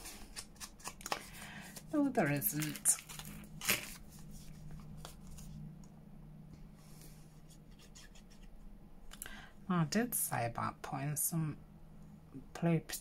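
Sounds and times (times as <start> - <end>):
paper rustling and tapping: 0.0 - 5.4.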